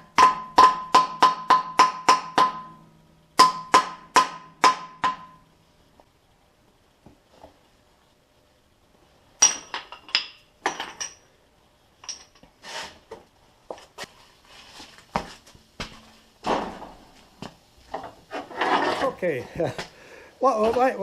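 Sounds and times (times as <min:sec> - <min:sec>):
hammer striking metal: 0:00.0 - 0:02.8, 0:03.4 - 0:05.4.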